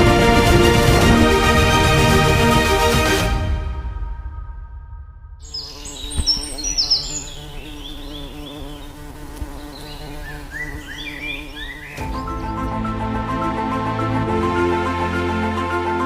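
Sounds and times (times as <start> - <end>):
wavering buzzing hum: 5.4 - 12.0.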